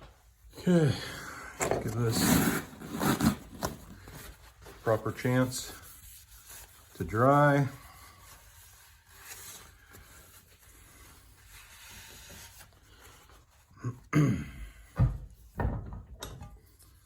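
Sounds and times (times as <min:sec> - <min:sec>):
knocks and thumps from objects: 0:15.0 - 0:16.5.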